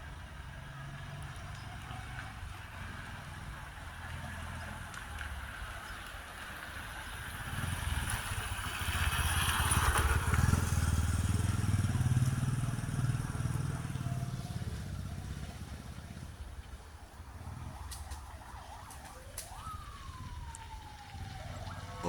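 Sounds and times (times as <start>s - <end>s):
vehicle engine rumble passing: 0.0s - 22.0s.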